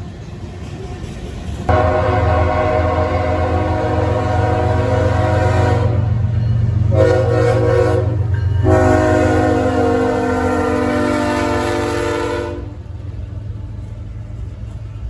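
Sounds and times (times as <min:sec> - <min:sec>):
locomotive engine rumble: 0:00.0 - 0:15.0
train air horn blasts: 0:01.7 - 0:06.2, 0:06.9 - 0:12.8.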